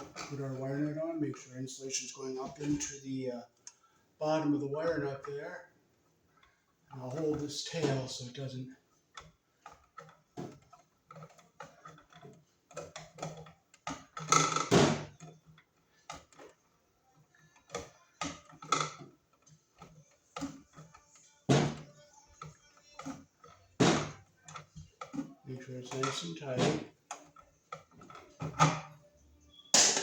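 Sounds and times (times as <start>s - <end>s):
wire nut clicking and scraping: 9.1s - 29.6s.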